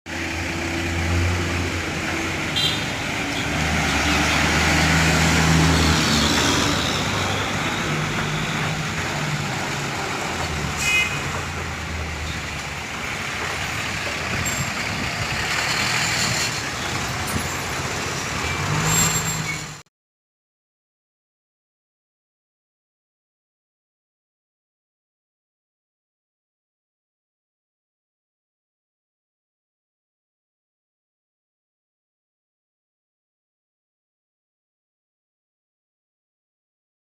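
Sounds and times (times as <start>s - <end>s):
heavy vehicle engines running: 0.1s - 19.8s
street traffic noise: 0.1s - 19.9s.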